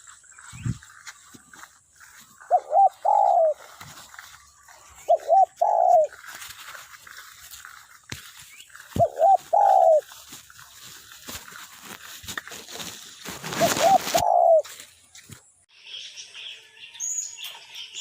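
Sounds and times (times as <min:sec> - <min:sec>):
dove cooing: 0:02.2 - 0:06.4, 0:08.8 - 0:10.1, 0:13.4 - 0:14.8.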